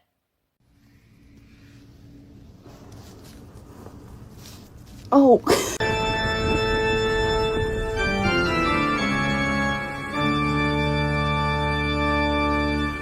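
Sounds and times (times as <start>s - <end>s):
organ music: 5.8s - 13.0s.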